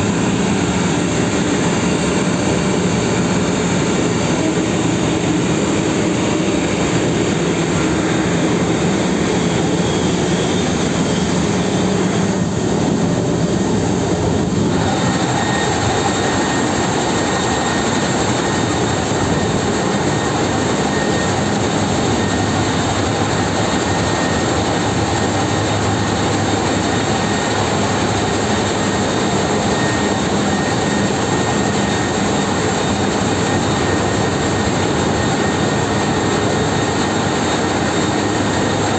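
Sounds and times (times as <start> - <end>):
machinery whine: 0.0 - 38.9
ship engine drone: 0.0 - 38.9.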